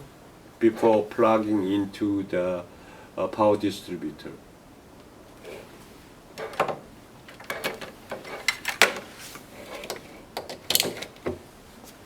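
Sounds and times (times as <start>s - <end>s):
cable plugs clicking and rattling: 6.4s - 11.4s.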